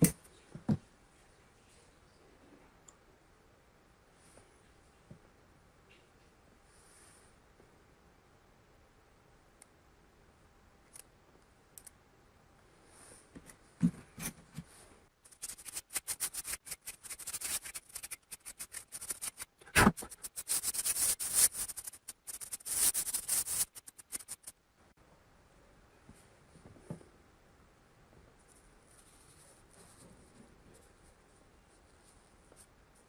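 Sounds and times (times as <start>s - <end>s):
small hard parts scratching and clicking: 15.2s - 24.6s.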